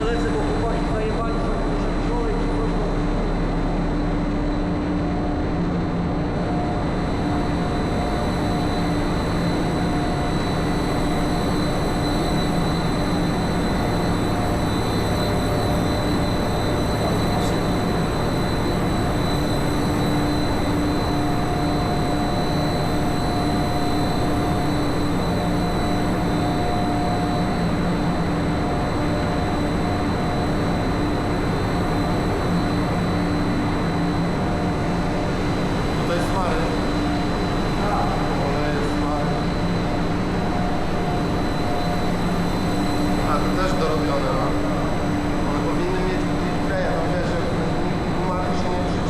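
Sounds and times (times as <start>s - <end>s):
constant machinery hums: 0.0s - 49.0s
engine room machinery din: 0.0s - 49.0s
high machinery whine: 0.0s - 49.0s.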